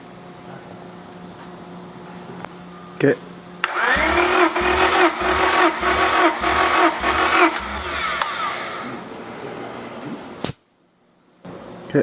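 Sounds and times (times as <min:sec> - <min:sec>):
car engine revving in bursts: 0:03.6 - 0:09.0
sharp click: 0:06.8 - 0:08.4.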